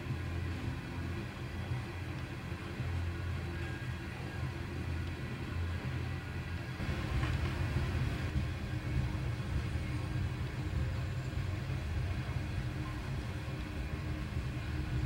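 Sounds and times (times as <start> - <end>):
train cars rumbling on rails: 6.8 - 15.0.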